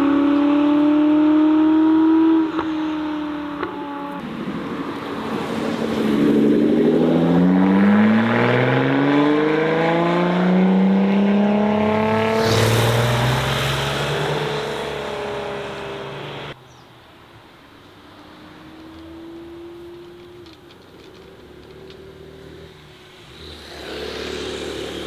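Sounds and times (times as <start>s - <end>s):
car engine accelerating: 0.0s - 16.6s.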